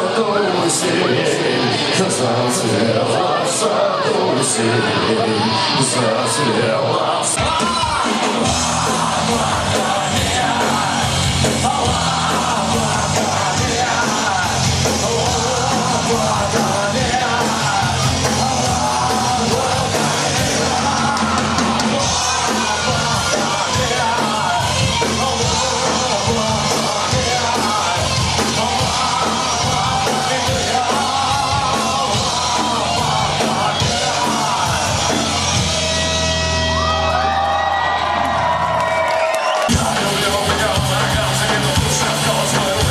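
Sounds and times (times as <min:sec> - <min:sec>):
live punk rock band: 0:00.0 - 0:42.9
people shouting vocals: 0:02.8 - 0:35.5.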